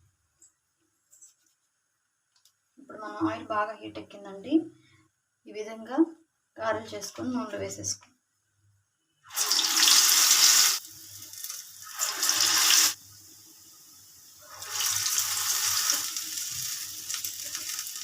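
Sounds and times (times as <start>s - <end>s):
batter sizzling in hot oil: 9.3s - 18.0s.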